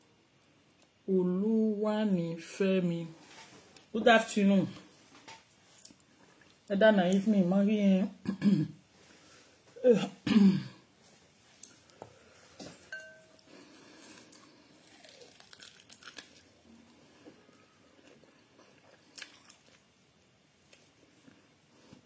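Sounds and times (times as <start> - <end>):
person chewing and crunching: 13.4 - 19.9.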